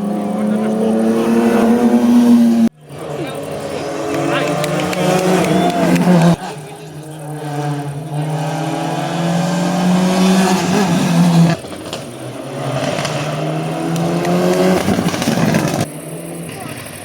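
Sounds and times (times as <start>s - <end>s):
rally car engine accelerating: 0.0s - 17.0s.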